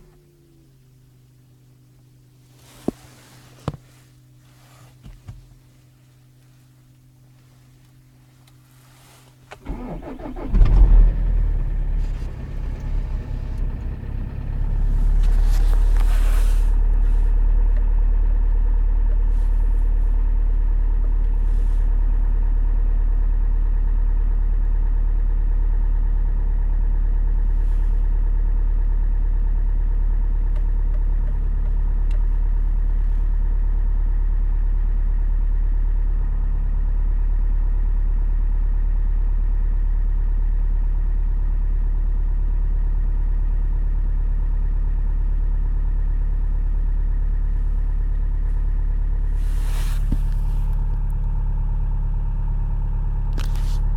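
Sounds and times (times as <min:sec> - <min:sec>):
diesel engine idling: 0:09.6 - 0:36.4, 0:43.9 - 0:53.9.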